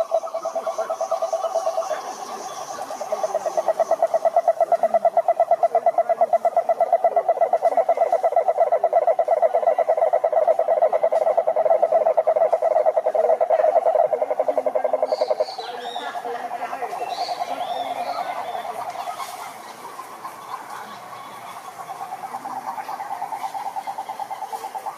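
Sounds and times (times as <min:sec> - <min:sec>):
faint frog calls: 0:00.0 - 0:24.9
frog pulsed trill: 0:00.0 - 0:24.9.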